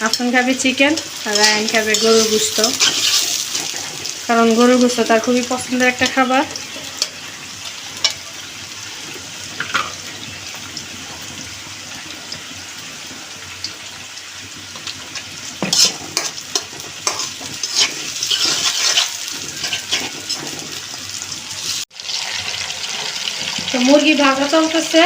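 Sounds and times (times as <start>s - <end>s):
chicken sizzling in hot oil: 0.0s - 25.0s
knocks and scraping in pan: 0.9s - 4.2s, 9.0s - 10.4s, 15.5s - 21.0s.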